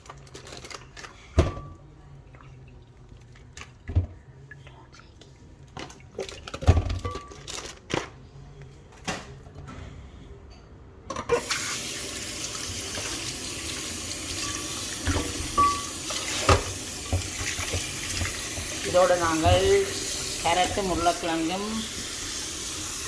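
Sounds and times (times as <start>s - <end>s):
tap water running into sink: 11.4s - 23.0s.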